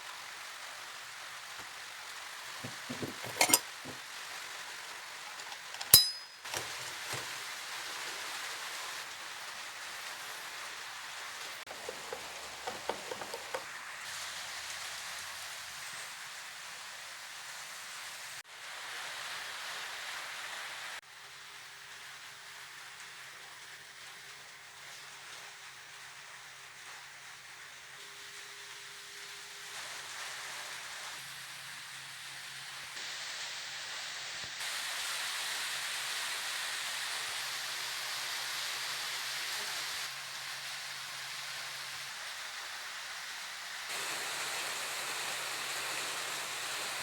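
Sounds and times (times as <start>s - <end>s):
steady hiss: 0.0s - 47.0s
light clinks: 2.6s - 4.0s, 5.4s - 7.2s.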